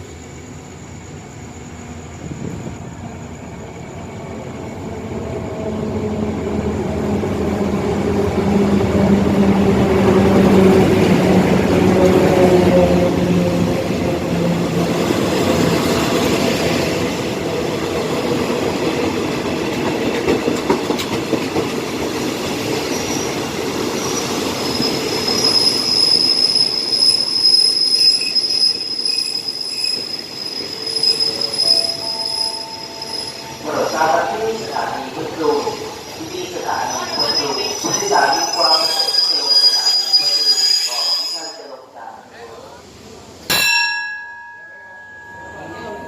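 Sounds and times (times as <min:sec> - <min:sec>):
high steady wheel squeal: 0:22.6 - 0:42.0.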